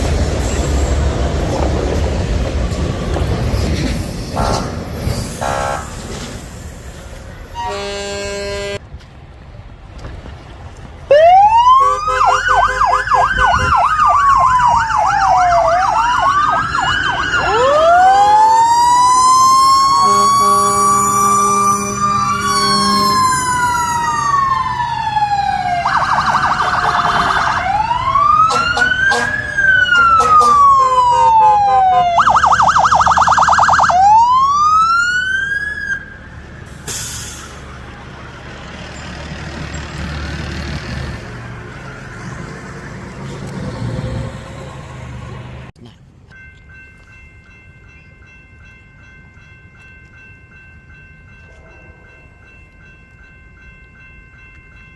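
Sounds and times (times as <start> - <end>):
steady low horn: 5.4 - 5.9, 7.6 - 8.8, 20.0 - 23.8, 28.4 - 32.2
rapid siren yelp: 11.1 - 36.2
emergency sirens wailing: 11.1 - 45.8.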